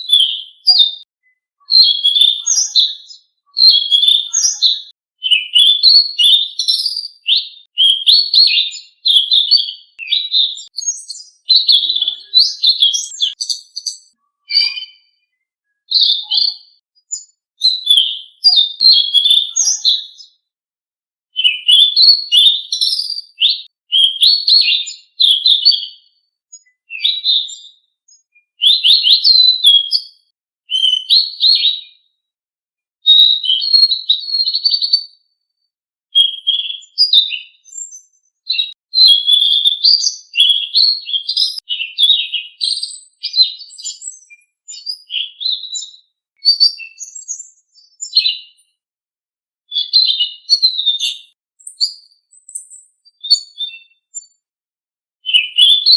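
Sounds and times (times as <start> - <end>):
songbird singing chattering phrases: 1.7 - 20.3.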